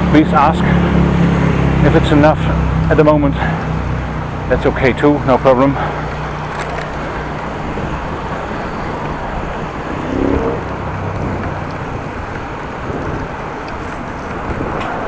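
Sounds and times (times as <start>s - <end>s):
road noise: 0.0s - 15.0s
wind rushing over microphone: 6.0s - 15.0s.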